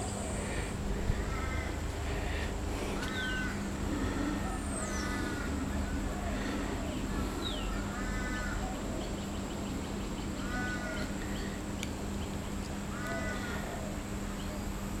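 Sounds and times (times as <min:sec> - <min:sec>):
low steady hum: 0:00.0 - 0:15.0
harsh crow-like bird call: 0:01.2 - 0:01.8, 0:03.0 - 0:06.5, 0:07.1 - 0:08.8, 0:10.4 - 0:11.2, 0:12.9 - 0:14.0.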